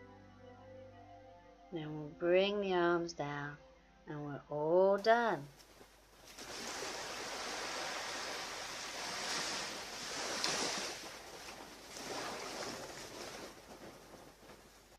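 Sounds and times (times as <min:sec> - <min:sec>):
sea waves breaking: 0:06.2 - 0:14.9.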